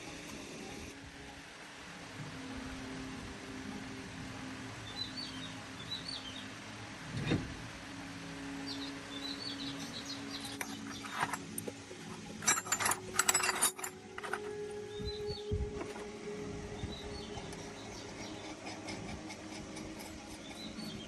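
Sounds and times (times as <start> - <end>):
small birds chirping: 8.6 - 11.3, 14.9 - 15.6, 16.8 - 21.0
steady low hum: 9.7 - 21.0
sharp metallic clinks: 12.3 - 14.5.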